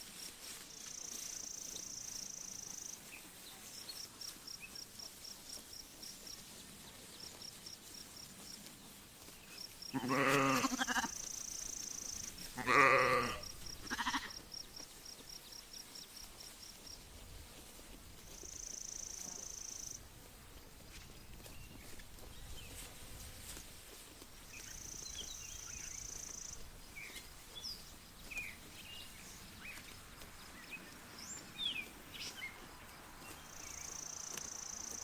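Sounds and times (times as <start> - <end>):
sheep bleating: 9.9 - 11.2, 12.5 - 14.4.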